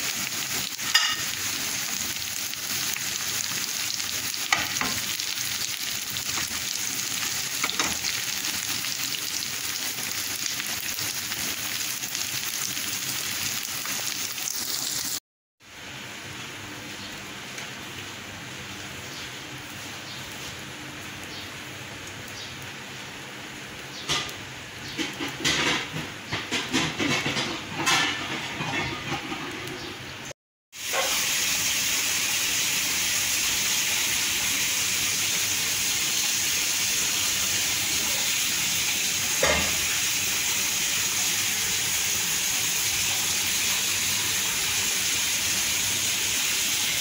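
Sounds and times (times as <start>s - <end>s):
omelette frying with pops: 0.0s - 15.2s, 23.8s - 28.3s
steady frying hiss: 0.0s - 47.0s.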